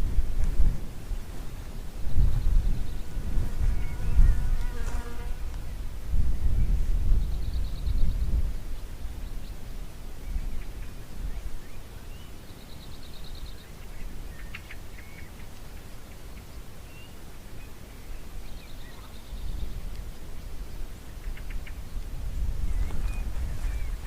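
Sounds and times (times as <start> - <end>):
songbird chirps and trills: 6.4 - 24.0.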